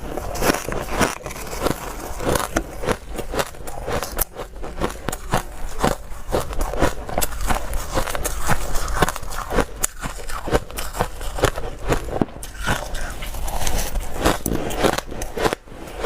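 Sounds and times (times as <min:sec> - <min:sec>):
ice crunching while chewed: 0:00.0 - 0:16.0.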